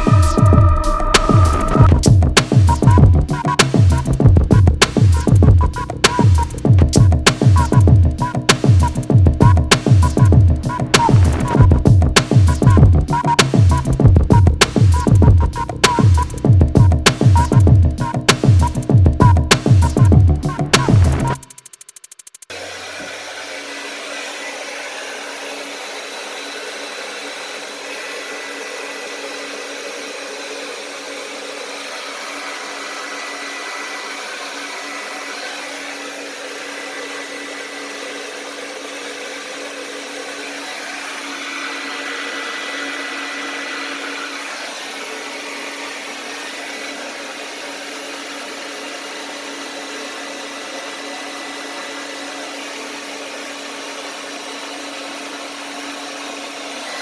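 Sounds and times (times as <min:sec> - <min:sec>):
hair dryer running: 0:00.0 - 0:02.6, 0:22.5 - 0:57.0.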